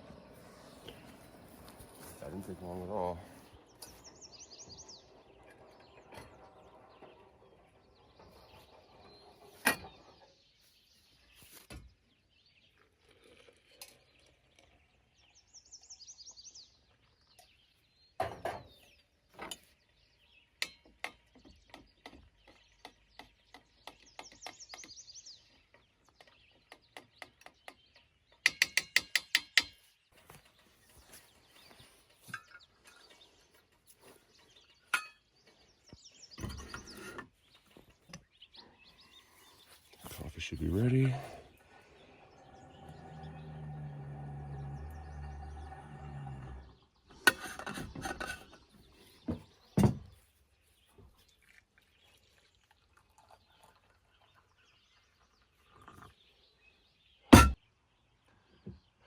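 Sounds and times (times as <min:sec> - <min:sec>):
birds singing: 0:00.0 - 0:59.0
camp gear clicking and knocking: 0:57.3 - 0:57.6.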